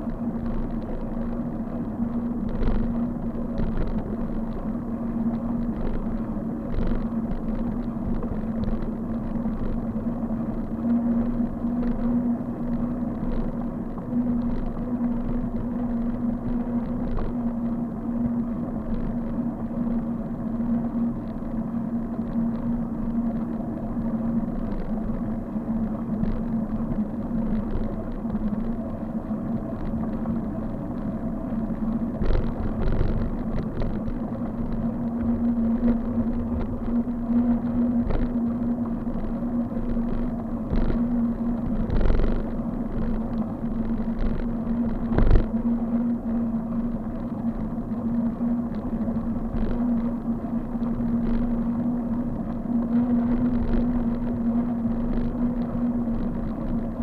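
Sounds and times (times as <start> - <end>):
road and wind rumble: 0.0 - 57.0
steady hum: 0.0 - 57.0
small rattling clicks: 32.2 - 38.4, 39.2 - 45.6.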